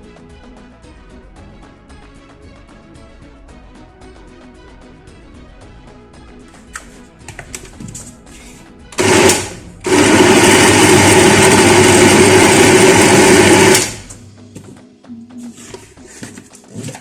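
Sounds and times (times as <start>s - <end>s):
electric blender running: 9.0s - 14.2s.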